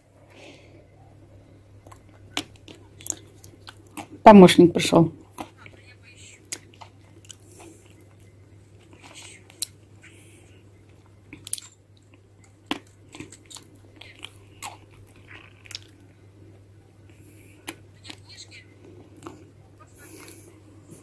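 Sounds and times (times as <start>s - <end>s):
faint steady hum: 0.0s - 21.0s
cats crunching dry food: 11.3s - 20.5s.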